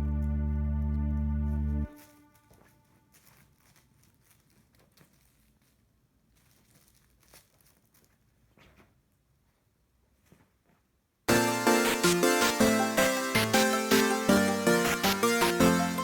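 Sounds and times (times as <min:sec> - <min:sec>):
faint rustles: 0:01.9 - 0:10.9.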